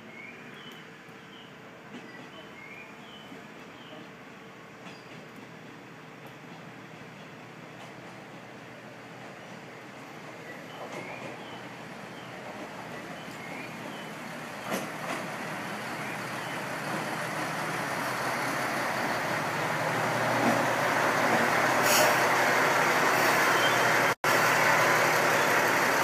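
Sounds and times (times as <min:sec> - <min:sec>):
diesel railcar engine running: 0:00.1 - 0:26.0
short hiss: 0:21.8 - 0:22.3.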